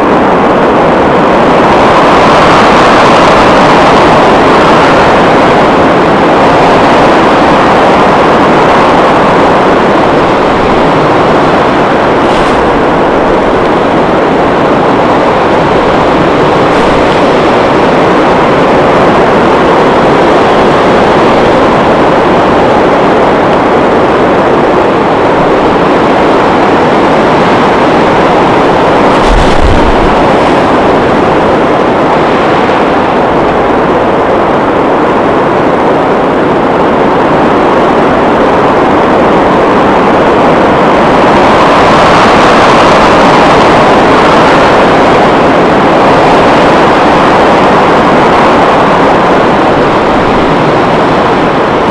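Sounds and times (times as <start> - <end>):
blizzard wind gusting: 0.0 - 51.9
low buffeting thump: 10.0 - 18.0, 28.8 - 31.6.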